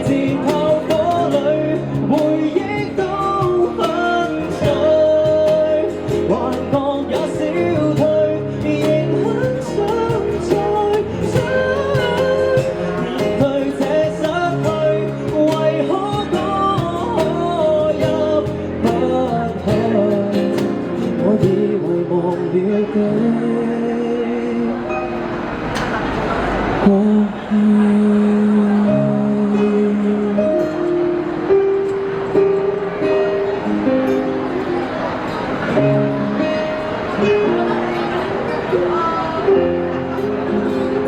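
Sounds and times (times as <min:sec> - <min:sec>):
man singing a ballad: 0:00.0 - 0:25.1, 0:26.8 - 0:31.2
guitar accompaniment: 0:00.0 - 0:41.0.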